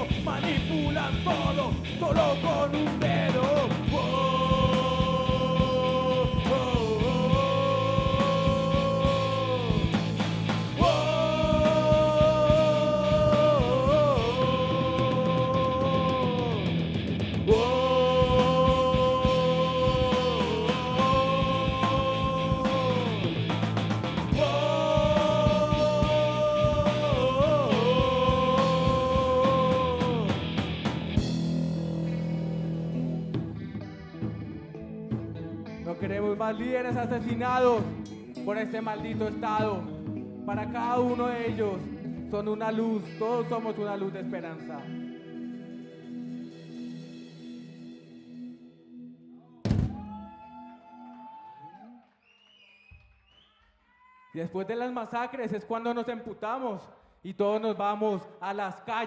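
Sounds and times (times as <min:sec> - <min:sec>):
punk rock band playing live: 0:00.0 - 0:42.5
drums: 0:00.0 - 0:43.2, 0:43.8 - 0:48.9, 0:49.6 - 0:51.8.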